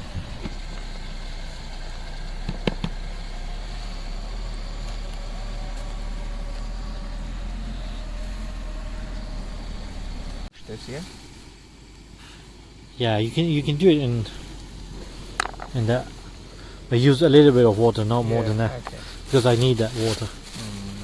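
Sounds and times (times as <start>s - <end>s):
wind rumble on microphone: 0.0s - 0.8s.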